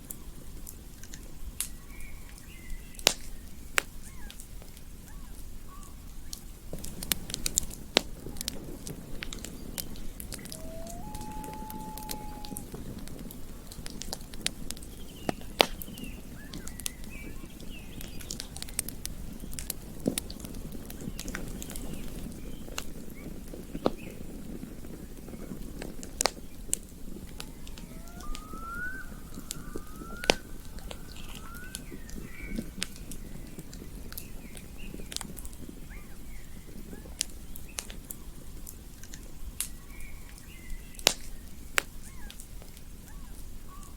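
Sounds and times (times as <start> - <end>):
campfire crackling and popping: 0.0 - 43.5
bird chirps: 10.4 - 12.6, 27.4 - 32.8.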